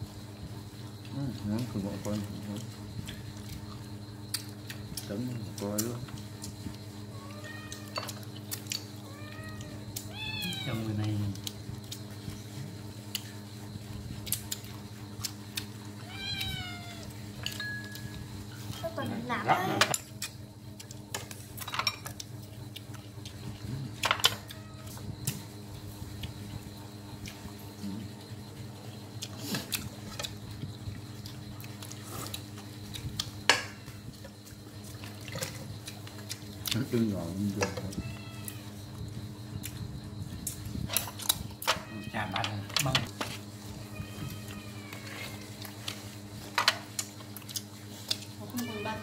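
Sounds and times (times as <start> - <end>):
steady low hum: 0.0 - 49.0
cat meowing: 7.1 - 8.0, 9.0 - 11.0, 16.0 - 17.1, 24.4 - 24.9, 37.9 - 38.7, 41.8 - 42.7, 43.8 - 45.5
chewing: 31.1 - 33.4, 34.2 - 36.9, 45.4 - 48.4.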